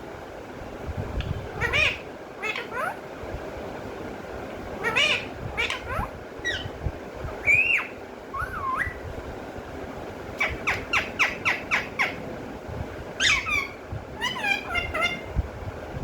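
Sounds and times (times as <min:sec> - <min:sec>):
parrot whistling and calling: 0:04.8 - 0:06.8, 0:07.4 - 0:09.0, 0:10.4 - 0:12.2, 0:13.2 - 0:15.3.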